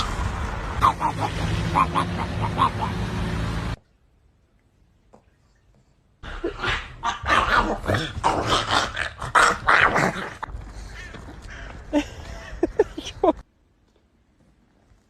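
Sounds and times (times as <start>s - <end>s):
dog barking and growling: 6.2s - 10.5s.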